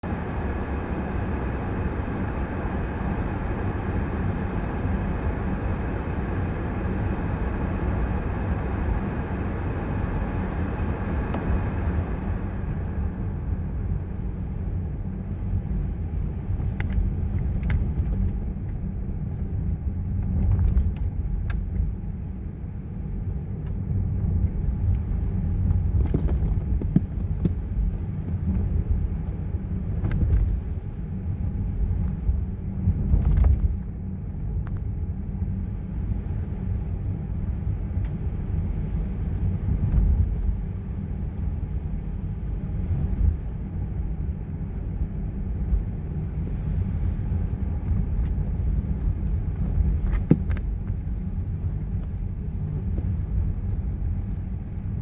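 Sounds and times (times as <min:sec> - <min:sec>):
car driving through snow: 0:00.0 - 0:55.0
faint clicks: 0:16.6 - 0:18.8.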